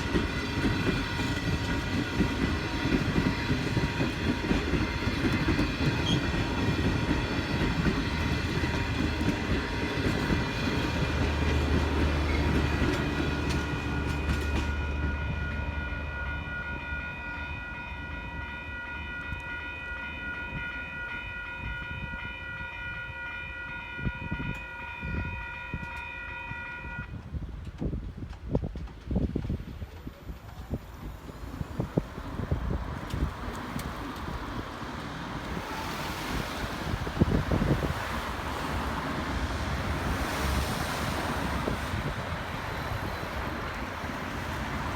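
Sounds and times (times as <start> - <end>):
train wheels clattering: 0.0 - 15.3
crossing warning bell ringing: 0.0 - 27.1.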